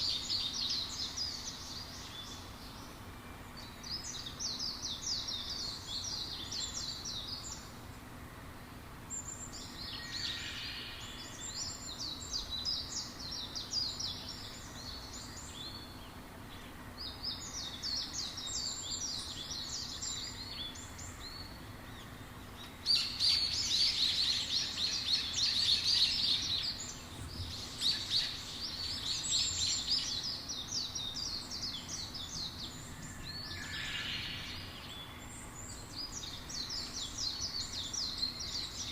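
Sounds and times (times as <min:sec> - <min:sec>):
faint background hiss: 0:00.0 - 0:38.9
songbirds twittering: 0:00.0 - 0:38.9.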